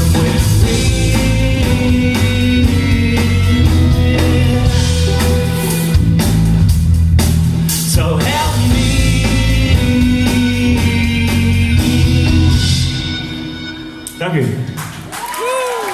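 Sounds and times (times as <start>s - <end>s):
person singing: 0.0s - 6.1s, 7.9s - 13.2s
rock band playing live: 0.0s - 15.2s.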